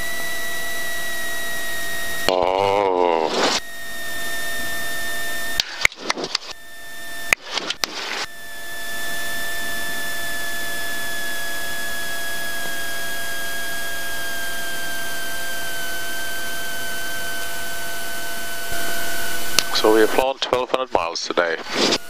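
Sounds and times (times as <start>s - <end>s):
high whine dropping in pitch: 2.0s - 15.2s
airplane cockpit noise: 2.3s - 14.2s, 18.8s - 22.0s.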